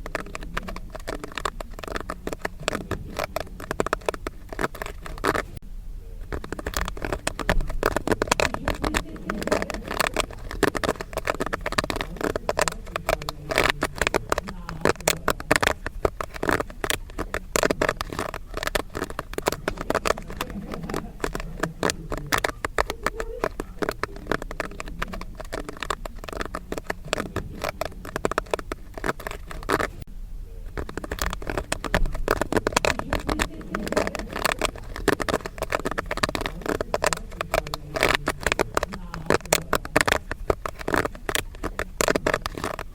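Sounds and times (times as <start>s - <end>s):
popcorn popping: 0.0s - 42.9s.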